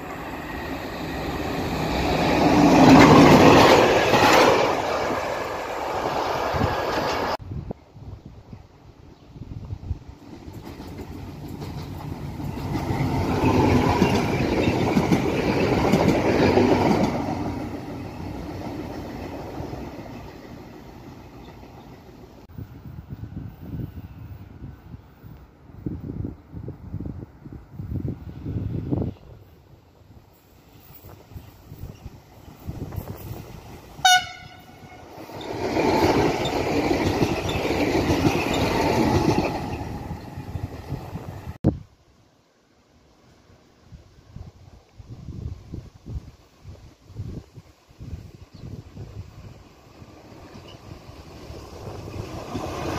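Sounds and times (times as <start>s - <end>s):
diesel train passing: 0.0s - 7.6s, 8.8s - 41.6s, 47.8s - 52.9s
train horn toot: 34.0s - 35.2s.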